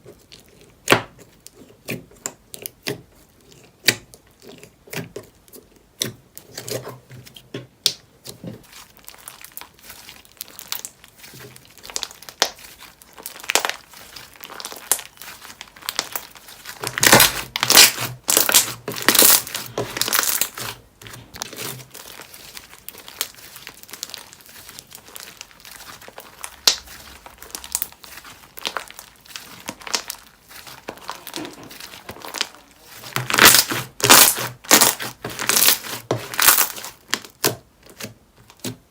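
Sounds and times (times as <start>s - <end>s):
slime squeezed with crinkly clicks: 7.8s - 38.7s.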